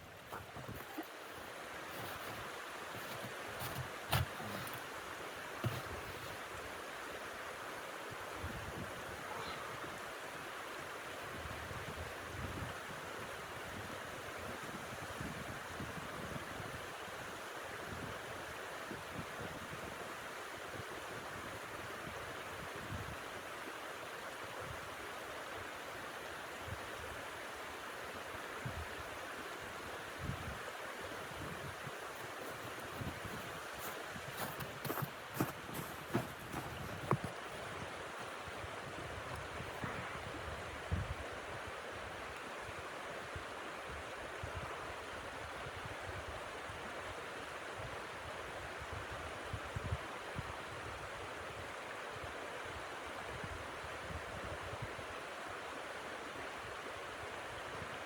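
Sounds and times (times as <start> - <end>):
strong wind blowing: 31.2 - 38.0.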